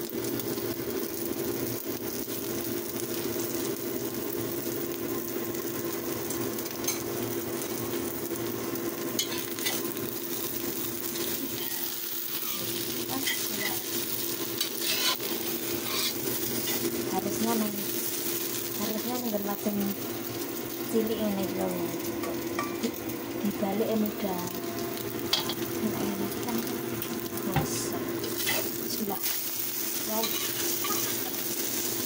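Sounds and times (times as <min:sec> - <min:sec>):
egg and mushrooms sizzling in pan: 0:00.0 - 0:32.0.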